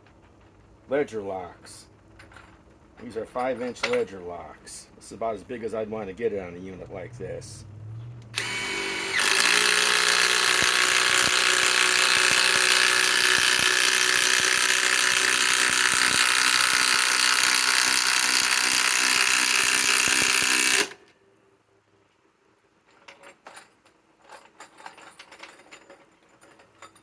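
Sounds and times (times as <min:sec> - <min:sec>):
impact driver hammering: 0:08.4 - 0:21.0.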